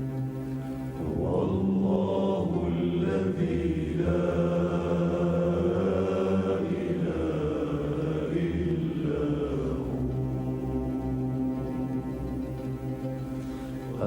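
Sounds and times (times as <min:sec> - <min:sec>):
musical drone: 0:00.0 - 0:14.0
person chanting: 0:01.0 - 0:11.3.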